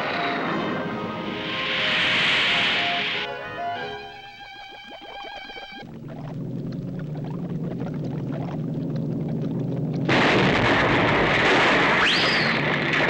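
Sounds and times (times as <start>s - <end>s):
low mechanical hum: 5.8s - 10.2s
loud explosion-like blast: 10.1s - 13.0s.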